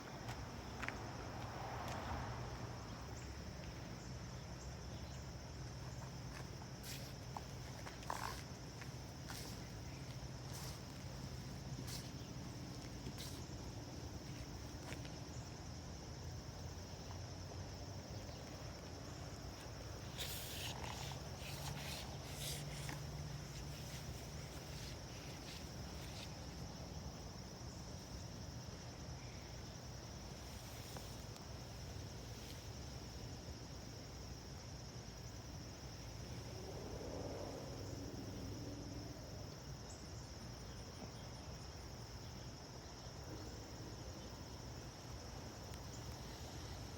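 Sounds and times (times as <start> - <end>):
insects trilling: 0.0 - 46.9.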